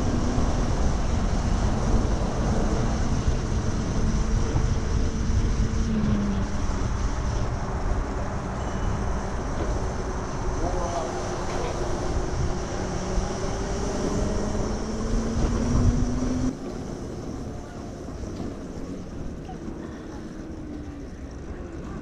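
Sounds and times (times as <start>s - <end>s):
wind rushing over microphone: 0.0s - 18.4s
road noise: 0.0s - 22.0s.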